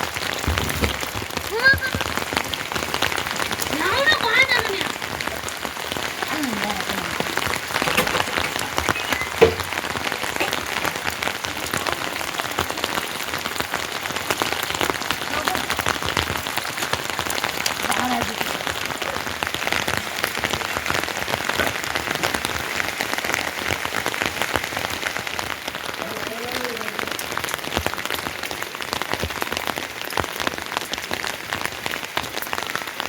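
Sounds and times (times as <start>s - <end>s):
heavy rain falling: 0.0s - 33.0s
sharp knock: 9.4s - 9.8s.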